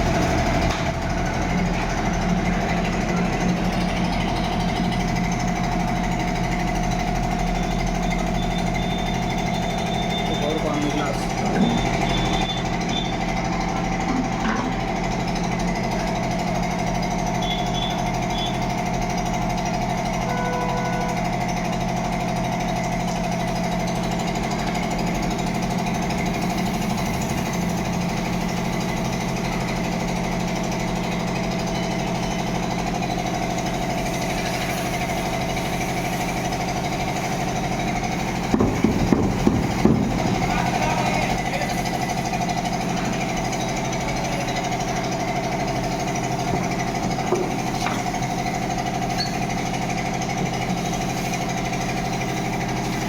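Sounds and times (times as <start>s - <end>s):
electric water pump humming: 0.0s - 53.0s
loud knocks: 38.5s - 40.5s.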